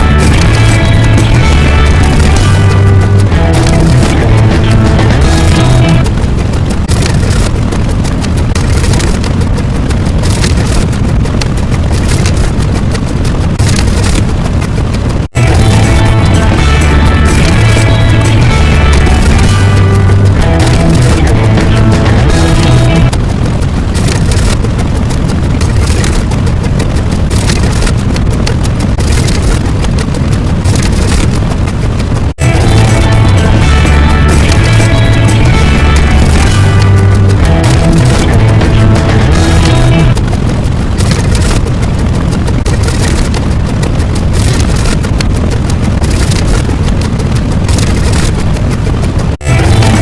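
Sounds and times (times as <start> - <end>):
faint music: 0.0 - 6.3, 15.4 - 23.2
deep rumble: 0.0 - 50.0
dense rushing noise with crackling: 0.0 - 50.0.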